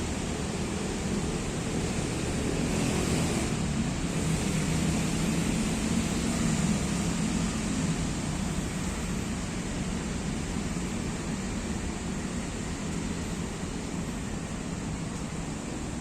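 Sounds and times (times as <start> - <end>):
low drone: 0.0 - 16.0
road traffic rushing: 0.0 - 16.0.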